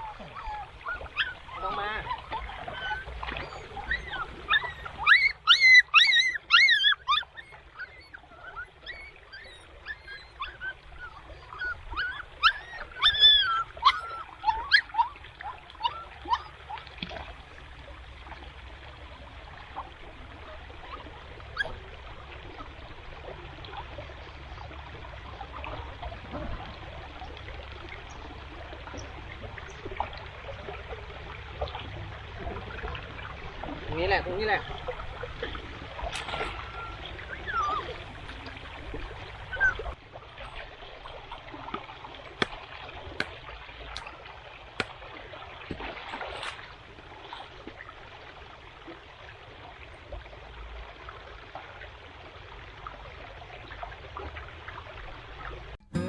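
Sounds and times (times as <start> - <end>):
short high animal calls: 0.0 - 16.8.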